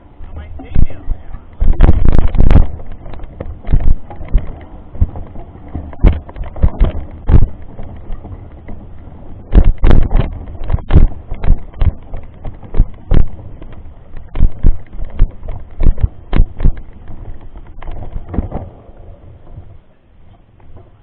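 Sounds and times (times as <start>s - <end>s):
wind on microphone: 0.0s - 21.0s
bike knocks and thuds: 0.8s - 19.7s.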